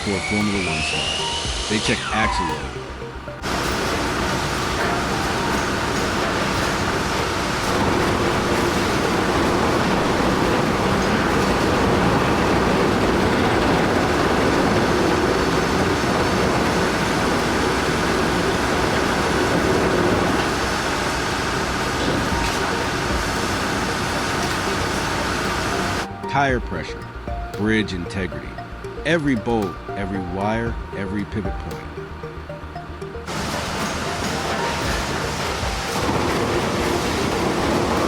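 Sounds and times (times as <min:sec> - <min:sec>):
heavy vehicle engines: 0:02.4 - 0:26.1.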